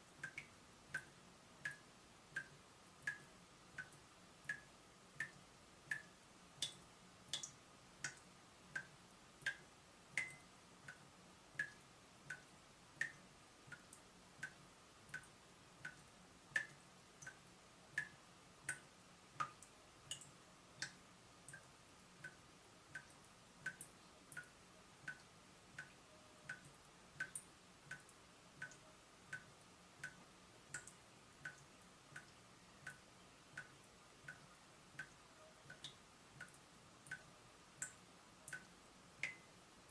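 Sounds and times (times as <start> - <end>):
water dripping from tap: 0.1 - 11.0, 11.6 - 39.5.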